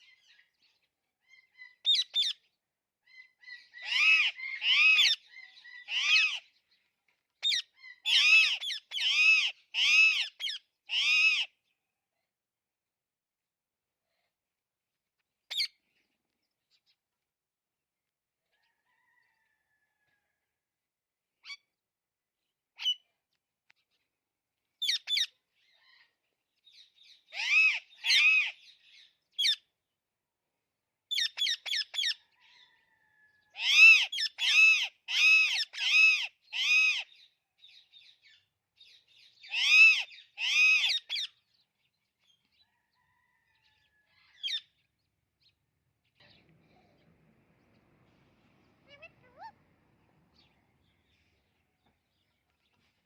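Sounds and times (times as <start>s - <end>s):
parrot squawking: 3.5s - 6.4s, 7.4s - 11.5s, 27.3s - 28.6s, 33.6s - 37.1s, 39.4s - 41.3s, 48.8s - 49.7s.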